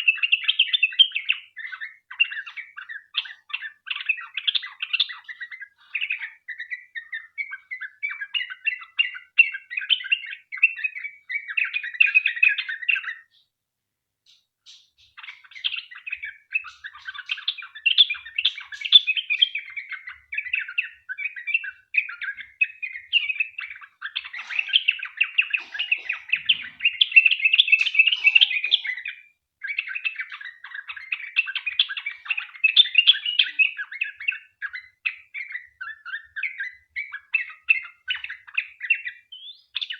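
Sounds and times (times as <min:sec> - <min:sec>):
bird singing chattering notes: 0:14.3 - 0:39.9.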